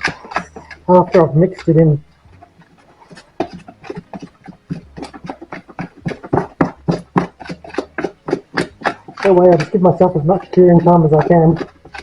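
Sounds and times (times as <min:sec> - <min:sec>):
stirrer scraping plastic container: 0:00.0 - 0:12.0.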